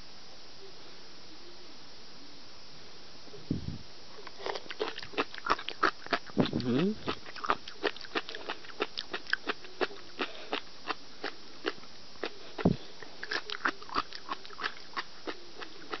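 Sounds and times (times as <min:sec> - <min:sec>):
person chewing food: 0:04.2 - 0:16.0.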